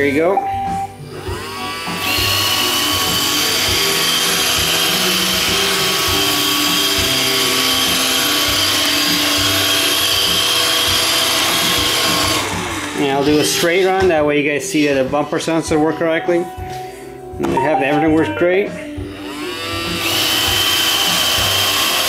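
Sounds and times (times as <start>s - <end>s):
robot vacuum motor whine: 1.0s - 13.8s, 19.1s - 22.0s.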